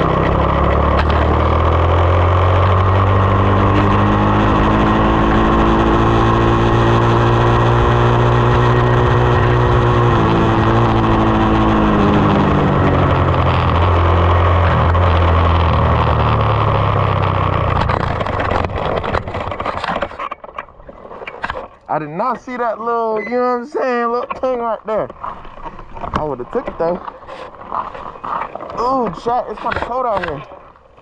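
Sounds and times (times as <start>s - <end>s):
dirt bike engine revving: 0.0s - 19.7s.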